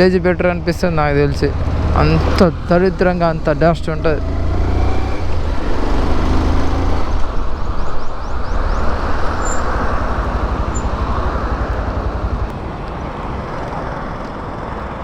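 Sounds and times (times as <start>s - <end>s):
motorcycle engine rumble: 0.0s - 12.8s
rushing wind noise: 0.0s - 15.0s.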